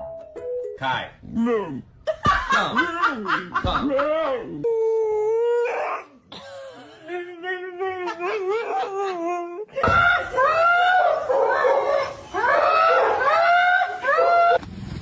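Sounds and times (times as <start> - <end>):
dog howling and whining: 4.5 - 6.2, 7.3 - 14.6.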